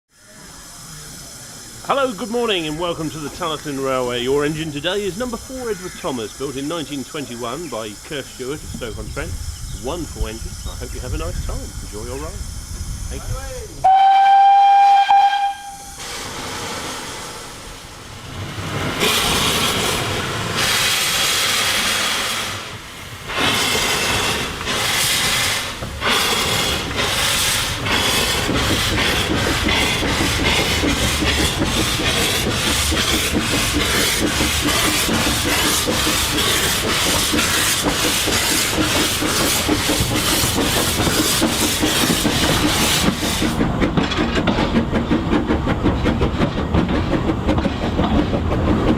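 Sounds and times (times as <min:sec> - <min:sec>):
steam hissing: 0:00.1 - 0:48.9
locomotive exhaust chuffs: 0:00.4 - 0:48.9
steam locomotive whistle: 0:13.8 - 0:16.0.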